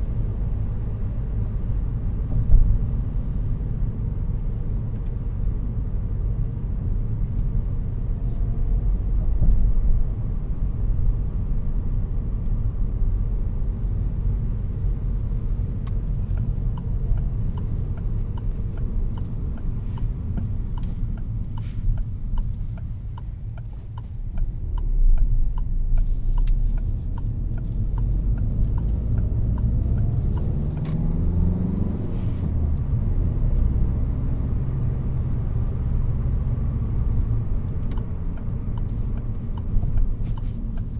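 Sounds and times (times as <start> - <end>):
car engine and tyres rumbling: 0.0 - 40.9
regular ticking: 16.4 - 30.5.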